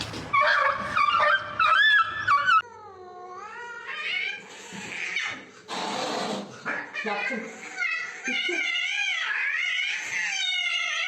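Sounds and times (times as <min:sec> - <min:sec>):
pet animal crying: 0:06.7 - 0:11.0.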